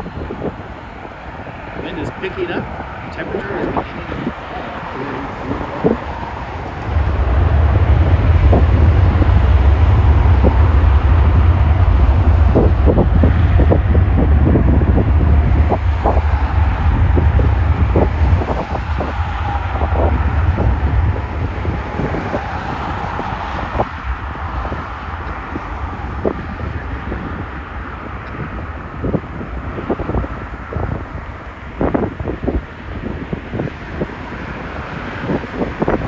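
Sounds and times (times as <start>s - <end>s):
gusts knocking microphone: 0.0s - 36.0s
wind buffeting microphone: 0.0s - 36.0s.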